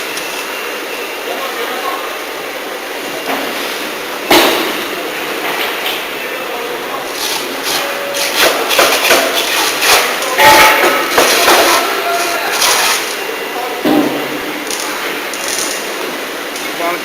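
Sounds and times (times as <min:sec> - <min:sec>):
production-line machinery running: 0:00.0 - 0:17.0
sharp knocks: 0:13.8 - 0:14.4
loud bang: 0:13.8 - 0:14.6.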